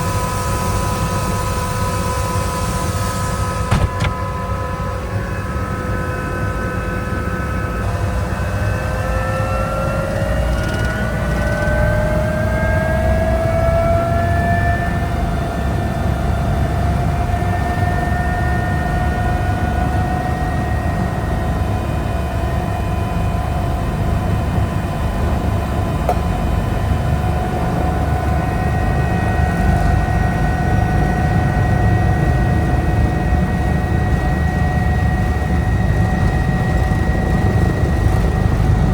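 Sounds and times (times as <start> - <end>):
helicopter rotor and engine rumble: 0.0 - 38.9
turbine whine: 0.0 - 38.9.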